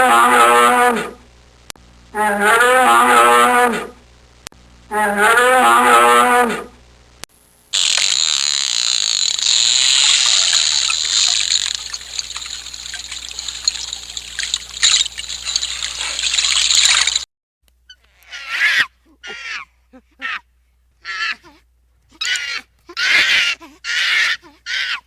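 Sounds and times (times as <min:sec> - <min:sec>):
high hissing noise with crackle: 0:07.3 - 0:17.3.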